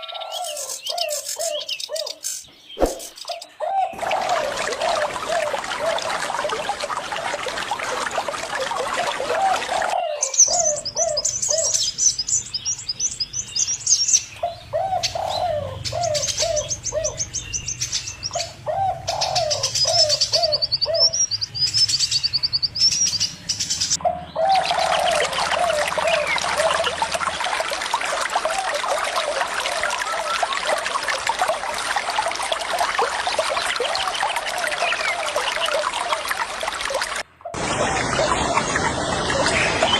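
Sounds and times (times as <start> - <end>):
high rapid bird chirping: 0.6 - 3.6
rushing water: 2.8 - 39.9.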